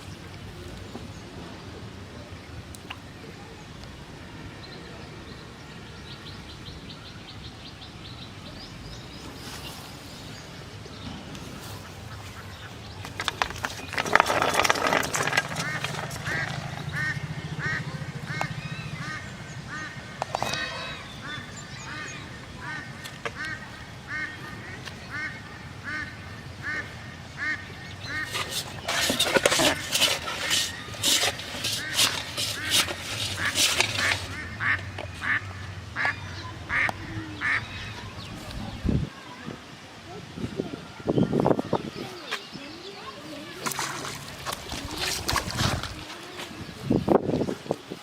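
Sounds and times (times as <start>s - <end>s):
loud crackling noise: 12.7s - 20.7s, 28.1s - 35.5s
steady low rumble: 15.6s - 24.8s.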